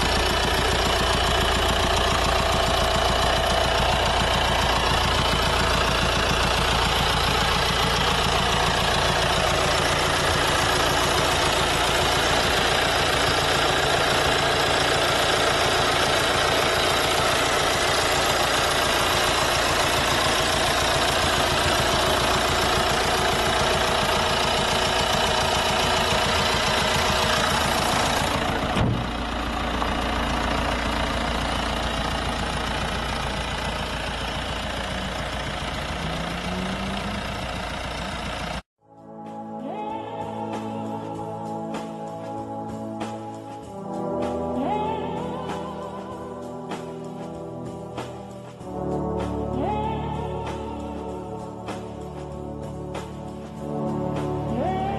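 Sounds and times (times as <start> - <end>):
diesel engine idling: 0.0 - 38.7
thump: 28.8 - 29.1.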